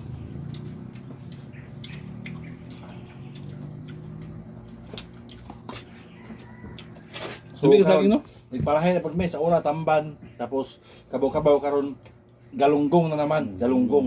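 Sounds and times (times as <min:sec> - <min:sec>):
wet eating sounds: 0:00.2 - 0:07.6.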